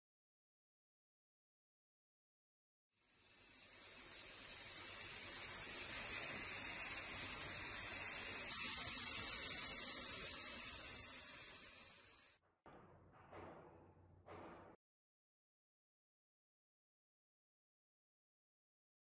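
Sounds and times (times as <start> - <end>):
steady high hiss: 3.0 - 12.4.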